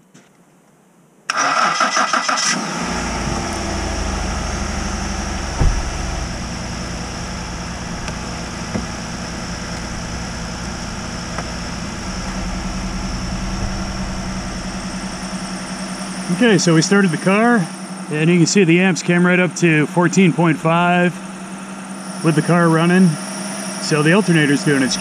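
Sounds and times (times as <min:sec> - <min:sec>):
engine idling: 0:01.3 - 0:25.0
thump: 0:05.3 - 0:10.2, 0:11.3 - 0:15.8.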